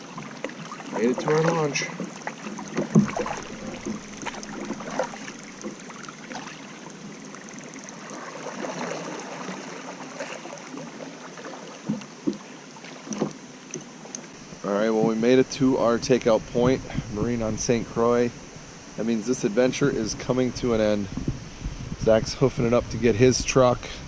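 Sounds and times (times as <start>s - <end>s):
water splashing around paddle: 0.0s - 14.4s
paddle knocking on hull: 1.0s - 6.4s.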